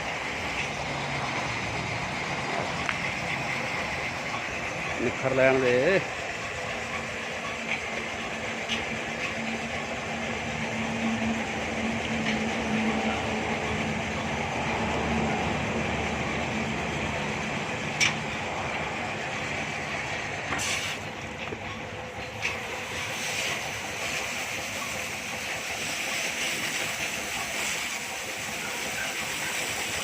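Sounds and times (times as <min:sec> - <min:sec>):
pressure washer pump humming: 0:00.0 - 0:30.0
sharp click: 0:18.0 - 0:18.2
water jet hissing: 0:20.5 - 0:21.1, 0:22.4 - 0:30.0.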